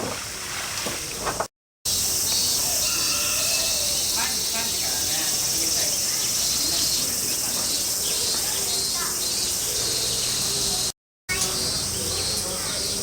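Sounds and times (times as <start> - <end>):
insects chirping: 1.9 - 13.0.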